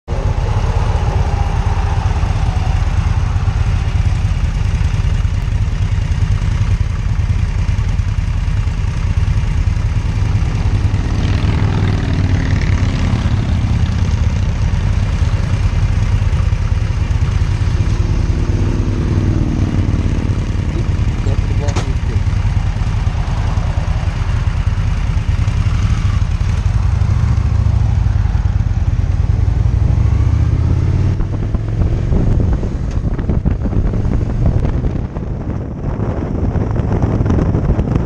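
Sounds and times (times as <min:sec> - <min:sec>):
rising and falling higher sound: 0:00.1 - 0:06.4
motorcycle engines idling: 0:00.1 - 0:29.9.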